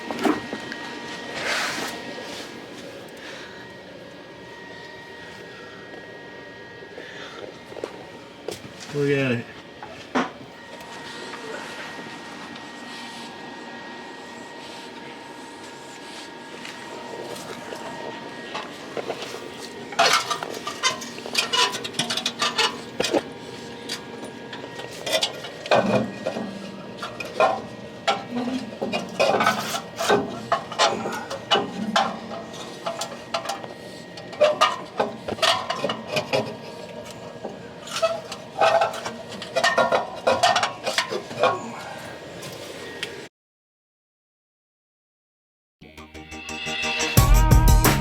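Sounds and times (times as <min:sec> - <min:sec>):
metal tools clinking and rattling: 0:20.0 - 0:23.2.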